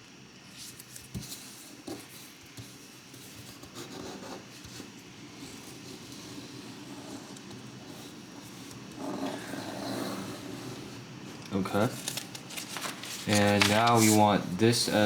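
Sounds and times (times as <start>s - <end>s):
paper folding and rustling: 11.3s - 15.0s.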